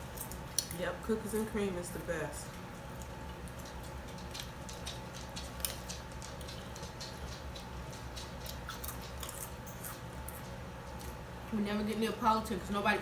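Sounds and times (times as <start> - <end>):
steady low hum: 0.0 - 13.0
chewing and mouth noises: 2.5 - 11.2.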